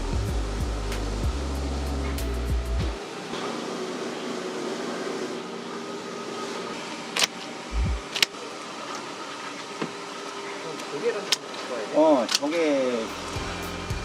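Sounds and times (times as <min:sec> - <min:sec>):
mechanical fan hum: 0:00.0 - 0:14.0.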